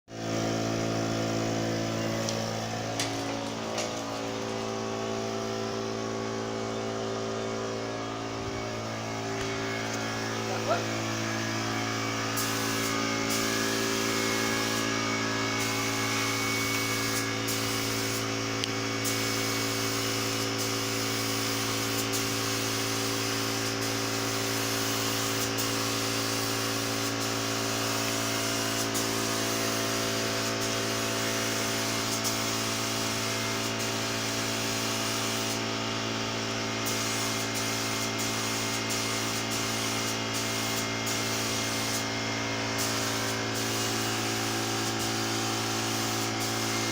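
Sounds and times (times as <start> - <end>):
air compressor humming: 0.1 - 46.9
spray gun hissing: 0.3 - 6.2, 8.0 - 35.7, 36.8 - 46.9.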